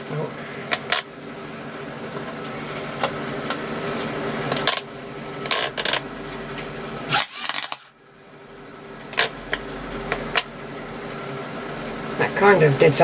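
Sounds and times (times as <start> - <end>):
sharp welding pops: 7.1 - 8.0.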